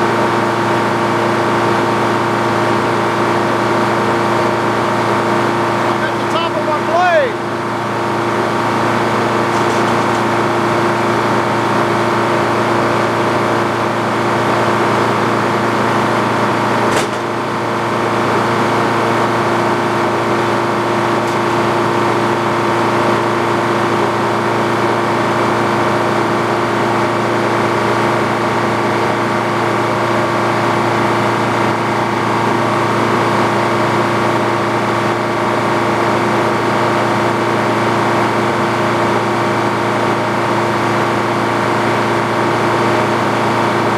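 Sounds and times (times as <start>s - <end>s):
sawmill machinery droning: 0.0s - 43.9s.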